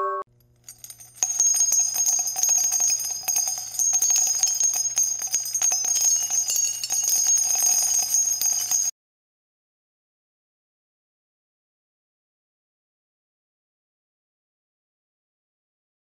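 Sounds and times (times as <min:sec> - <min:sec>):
small bells jingling: 0:00.6 - 0:08.9.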